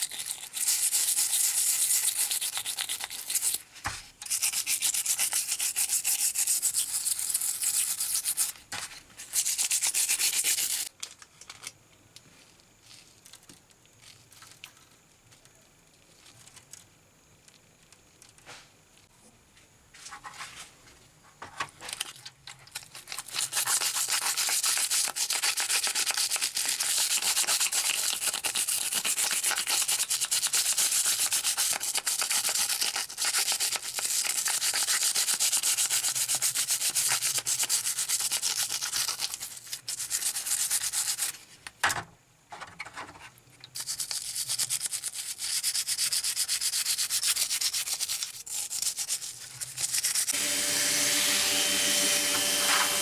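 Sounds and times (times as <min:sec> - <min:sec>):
sanding on metal: 0:44.2 - 0:53.0.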